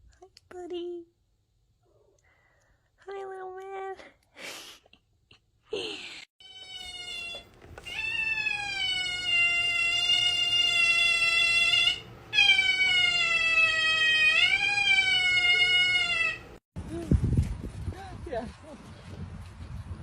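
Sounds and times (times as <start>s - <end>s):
cat yowling: 6.4s - 16.6s.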